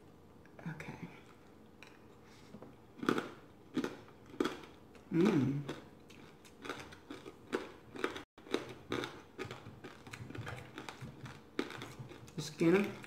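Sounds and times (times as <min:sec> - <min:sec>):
chewing crispy food: 0:01.3 - 0:13.0.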